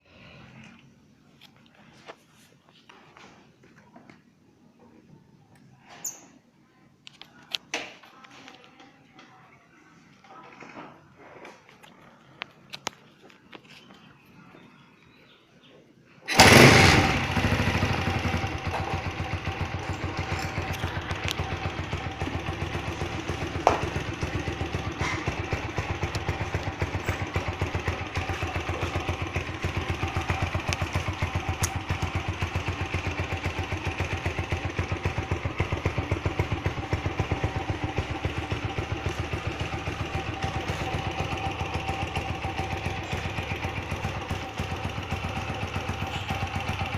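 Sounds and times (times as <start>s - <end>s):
motorcycle engine starting and idling: 16.2s - 46.9s.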